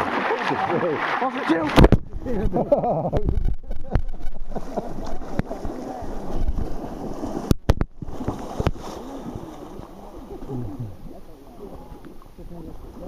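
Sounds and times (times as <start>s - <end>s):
river flowing: 0.0s - 2.8s, 3.7s - 13.0s
wind on microphone: 1.8s - 8.9s.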